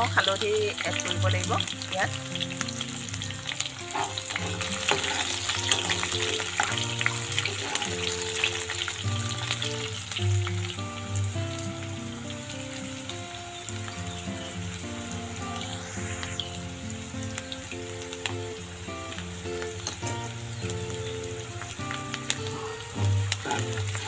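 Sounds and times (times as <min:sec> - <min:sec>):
background music: 0:00.0 - 0:24.0
onions sizzling in oil: 0:00.0 - 0:24.0
spatula stirring in wok: 0:03.1 - 0:09.7.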